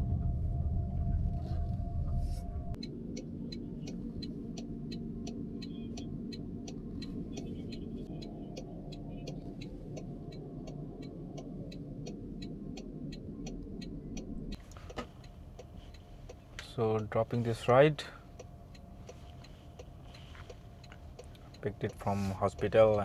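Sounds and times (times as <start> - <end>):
car low rumble: 0.0 - 23.0
car indicator ticking: 2.8 - 23.0.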